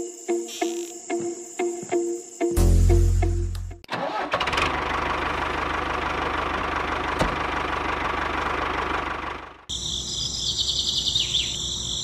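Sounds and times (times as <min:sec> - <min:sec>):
diesel pump engine chugging: 0:04.0 - 0:09.7.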